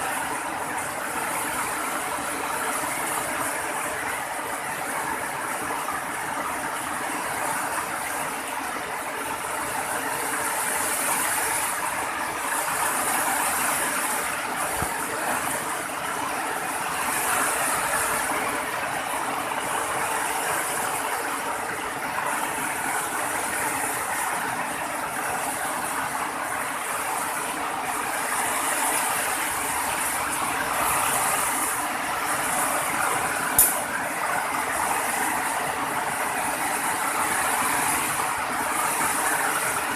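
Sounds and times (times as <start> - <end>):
rain hissing: 0.0 - 39.9
sharp click: 33.6 - 33.8.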